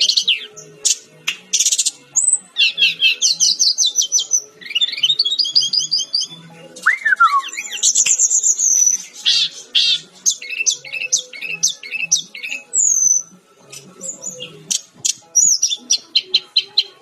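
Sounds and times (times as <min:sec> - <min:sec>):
bird singing whistled notes: 0:01.6 - 0:13.3, 0:14.0 - 0:17.0.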